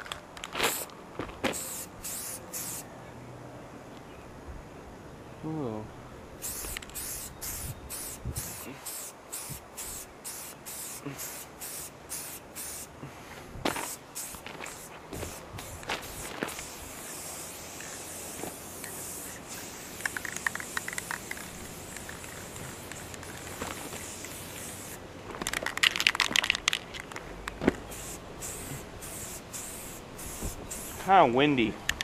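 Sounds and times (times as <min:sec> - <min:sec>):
spray paint can hissing: 0:00.6 - 0:00.9, 0:01.5 - 0:02.8, 0:06.4 - 0:12.9, 0:13.7 - 0:26.8, 0:27.9 - 0:31.1
wind on microphone: 0:07.4 - 0:08.8
sharp clicks and crackles: 0:20.0 - 0:23.8, 0:25.4 - 0:27.8.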